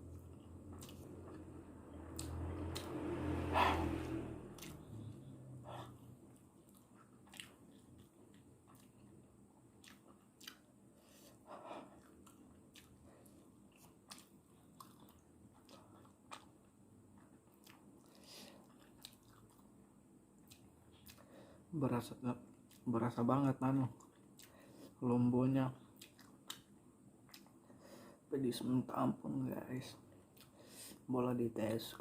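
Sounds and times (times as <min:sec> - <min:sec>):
chewing noodles: 0:00.1 - 0:19.8, 0:20.4 - 0:21.4, 0:23.8 - 0:24.9, 0:25.8 - 0:27.7
wet mouth clicks and smacks: 0:02.1 - 0:03.0.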